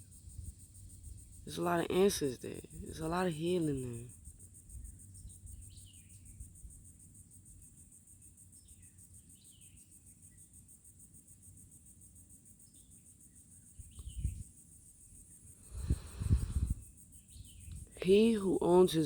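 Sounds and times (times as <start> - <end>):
insects trilling: 0.0 - 19.0
bird chirps: 4.7 - 6.5, 8.5 - 10.4, 13.6 - 14.5, 17.2 - 17.8.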